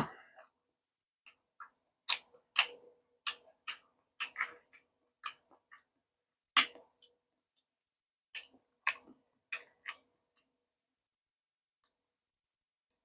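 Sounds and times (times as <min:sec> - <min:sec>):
chewing crunchy food: 0:01.2 - 0:06.0, 0:08.3 - 0:10.6.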